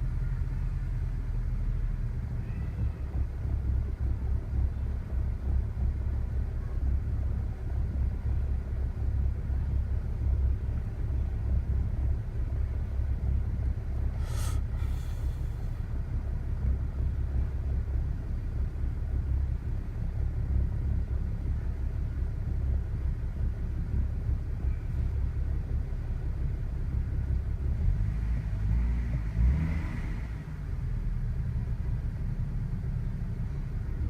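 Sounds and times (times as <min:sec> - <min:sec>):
car engine idling roughly: 0:00.0 - 0:27.9
brief hiss: 0:14.2 - 0:15.7.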